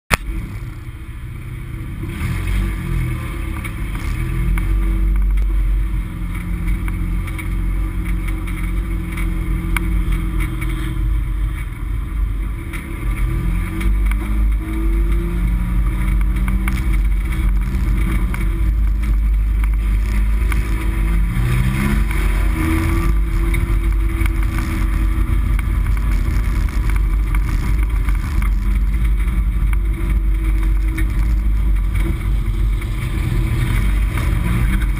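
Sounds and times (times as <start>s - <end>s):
race car engine revving: 1.7s - 34.9s.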